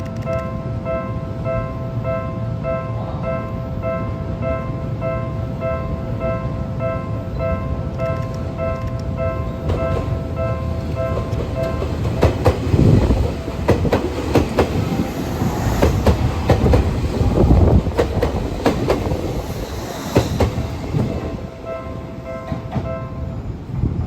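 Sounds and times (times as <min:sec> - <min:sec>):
train rolling rumble: 0:00.0 - 0:24.0
wheels clacking over rail joints: 0:07.9 - 0:21.5.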